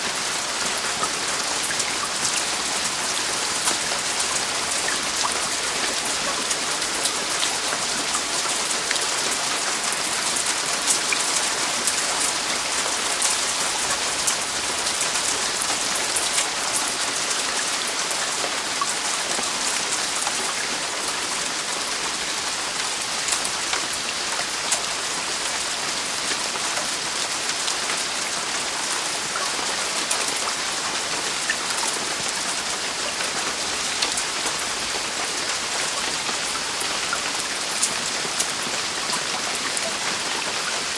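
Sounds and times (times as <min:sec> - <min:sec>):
heavy rain on a roof: 0:00.0 - 0:40.9.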